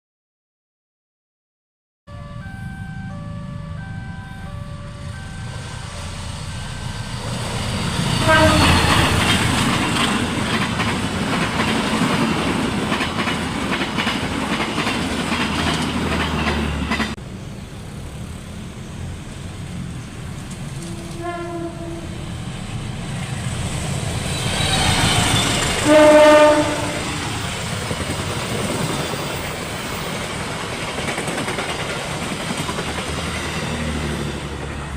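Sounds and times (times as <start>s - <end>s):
train rumble and wheel clatter: 2.4s - 34.9s
locomotive horn: 8.1s - 9.4s, 20.8s - 22.3s, 24.4s - 27.3s.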